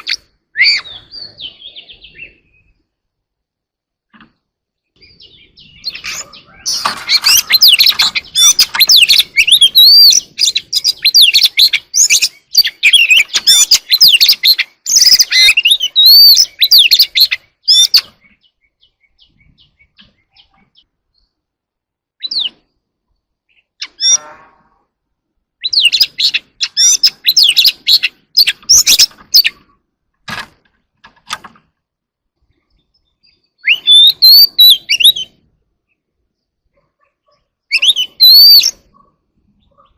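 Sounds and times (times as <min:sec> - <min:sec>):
bird singing whistled phrases: 0:00.0 - 0:02.8, 0:05.0 - 0:20.6, 0:25.6 - 0:29.6, 0:33.2 - 0:35.4, 0:37.7 - 0:38.8.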